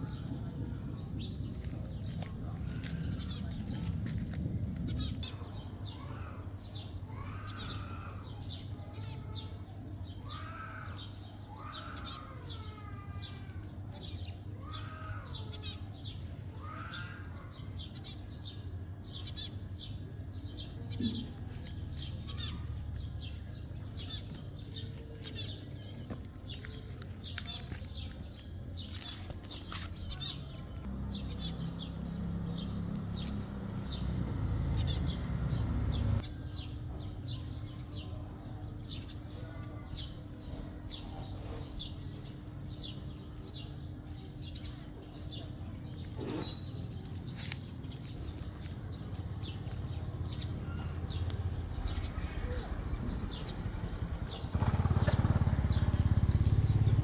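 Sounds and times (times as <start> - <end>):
steady low rumble: 0.0 - 5.8
small birds chirping: 0.0 - 57.0.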